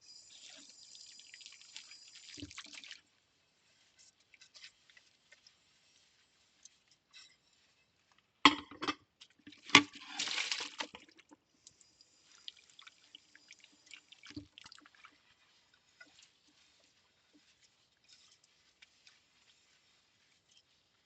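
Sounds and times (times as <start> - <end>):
water splashing: 9.6 - 11.2.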